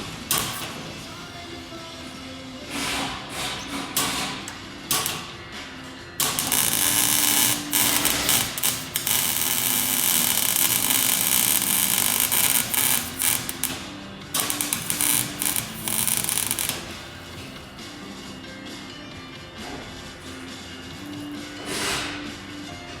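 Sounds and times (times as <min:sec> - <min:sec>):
welding arc crackling and hissing: 0:06.2 - 0:13.8, 0:14.4 - 0:17.2.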